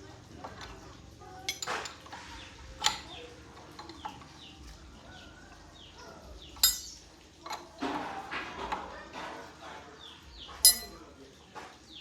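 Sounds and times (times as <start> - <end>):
metal tools clinking: 0.4 - 4.6, 6.4 - 8.0, 10.6 - 11.1.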